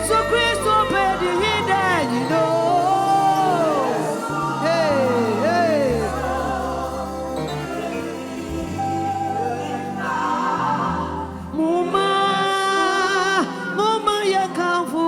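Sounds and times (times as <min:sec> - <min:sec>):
band playing bass and keyboard: 0:00.0 - 0:11.1
person singing: 0:00.0 - 0:15.0.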